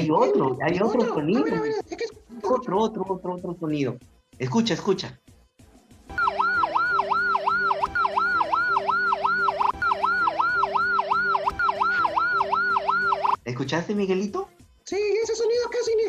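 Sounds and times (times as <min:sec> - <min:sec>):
ambulance siren yelping: 0:06.1 - 0:13.4.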